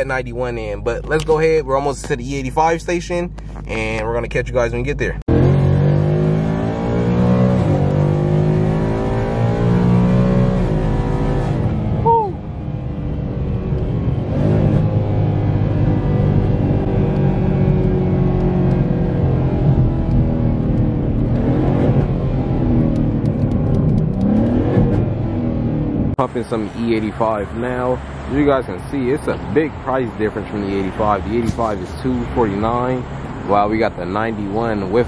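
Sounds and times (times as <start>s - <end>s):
car engine from inside cabin: 5.3s - 27.0s.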